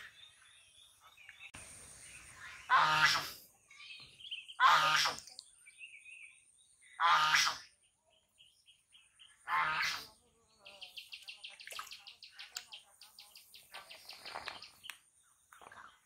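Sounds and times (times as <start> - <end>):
small birds chirping and trilling: 0.0 - 16.0
loud bird cry: 2.2 - 5.3.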